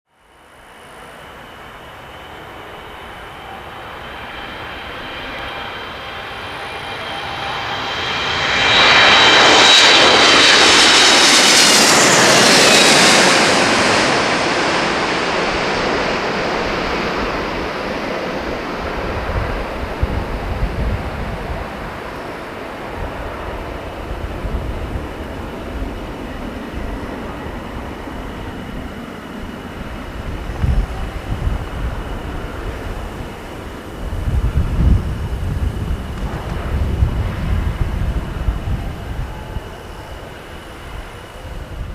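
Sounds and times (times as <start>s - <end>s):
jet engines whining: 0.3s - 41.9s
low rumble with bumps: 35.7s - 38.8s.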